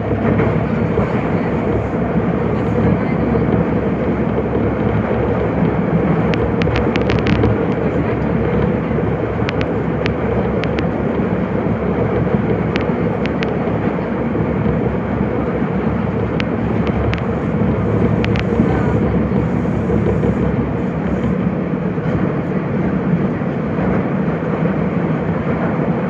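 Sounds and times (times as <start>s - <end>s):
subway train wheels rumbling: 0.0s - 26.0s
sharp clicks: 6.2s - 7.8s, 9.4s - 11.0s, 12.6s - 13.6s, 16.2s - 17.4s.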